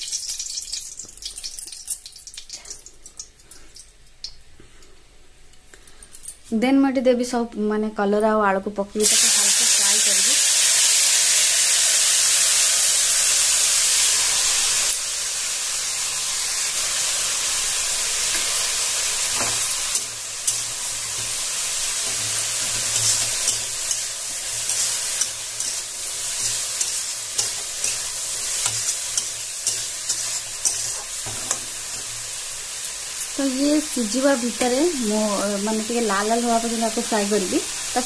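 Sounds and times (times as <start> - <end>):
vegetables sizzling in oil: 0.0 - 4.5, 8.9 - 38.0
metal tongs scraping pan: 22.0 - 32.2.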